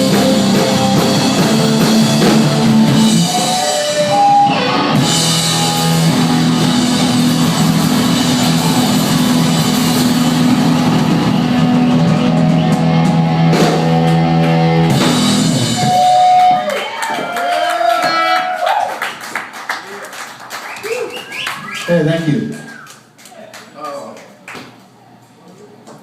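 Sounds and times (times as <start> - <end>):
distorted electric guitar chords: 0.0 - 16.4
drum kit: 0.0 - 17.3.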